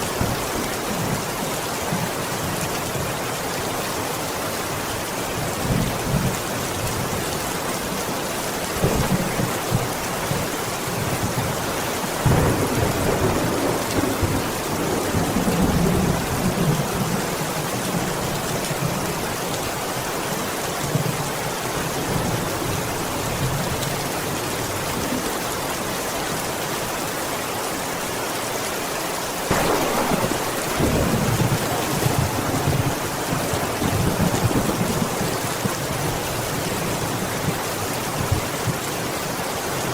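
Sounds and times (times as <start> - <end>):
steady rain: 0.0 - 39.9
thunder rolling: 12.2 - 16.9, 29.5 - 35.9.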